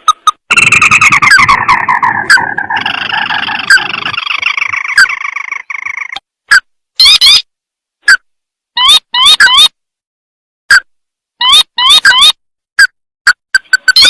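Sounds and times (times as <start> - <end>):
crake call trilling: 0.3 - 6.2.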